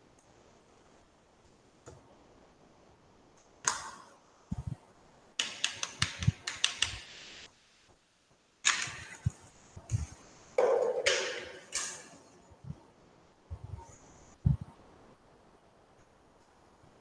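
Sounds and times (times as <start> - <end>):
mouse and keyboard clicks: 3.6 - 4.0, 5.4 - 7.1, 8.6 - 10.1, 11.0 - 12.2.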